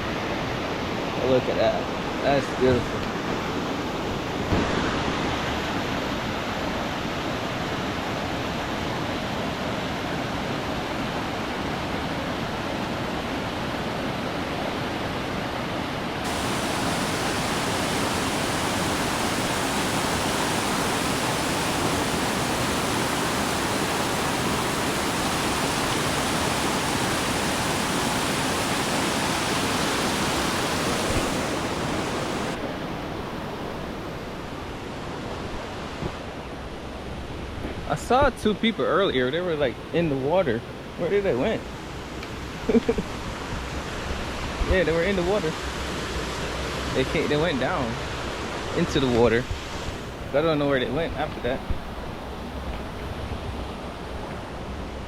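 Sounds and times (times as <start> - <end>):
waterfall roaring: 16.2 - 32.8.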